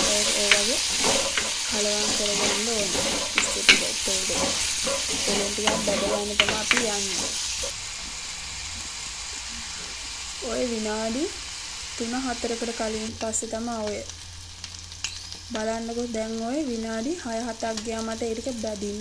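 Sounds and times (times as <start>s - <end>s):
wooden spoon stirring: 0.0s - 7.7s
prawns sizzling in oil: 0.0s - 19.0s.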